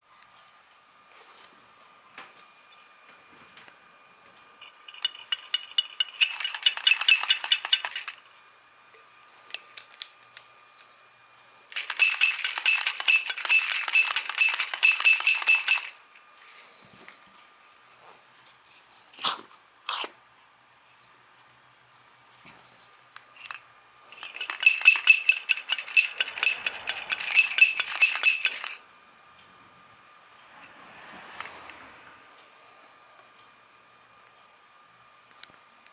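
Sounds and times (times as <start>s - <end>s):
carburetor metallic rattle: 4.6s - 8.3s, 11.7s - 16.0s, 23.4s - 28.8s.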